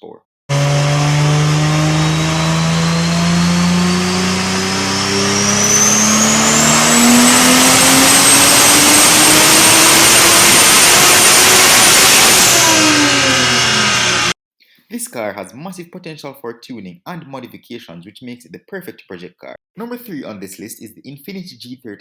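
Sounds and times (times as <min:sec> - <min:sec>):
high whine: 0:00.5 - 0:14.3
car engine accelerating hard: 0:00.5 - 0:14.4.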